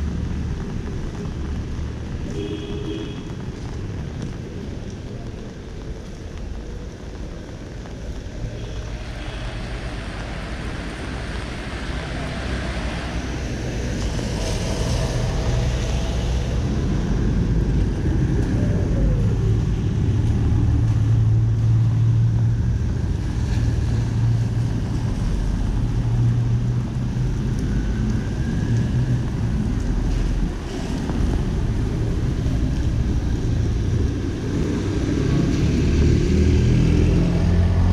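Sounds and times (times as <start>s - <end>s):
road and wind noise: 0.0s - 37.9s
vehicles passing close by: 0.0s - 37.9s.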